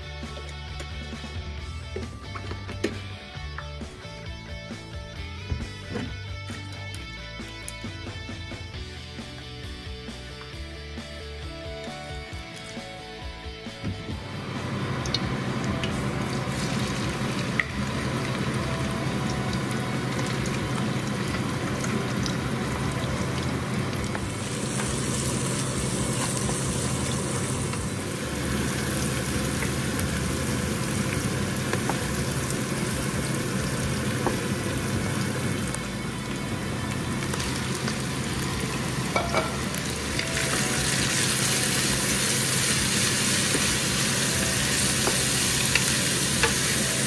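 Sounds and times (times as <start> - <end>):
garlic sizzling in hot oil: 14.7 - 47.0.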